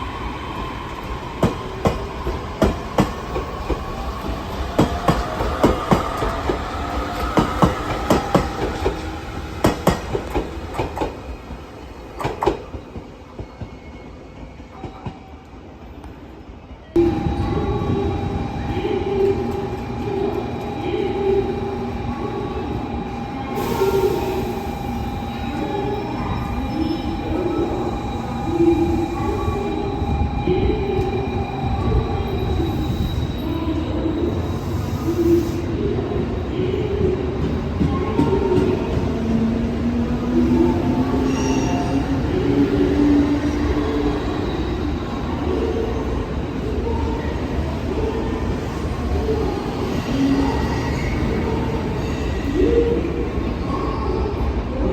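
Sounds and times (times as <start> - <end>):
train rumbling: 0.0 - 15.0, 16.9 - 54.9
train wheels clacking on rails: 9.6 - 11.2.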